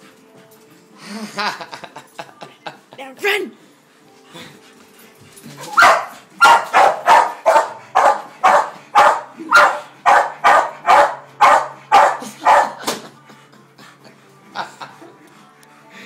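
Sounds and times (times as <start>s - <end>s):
dog barking: 5.7s - 12.8s.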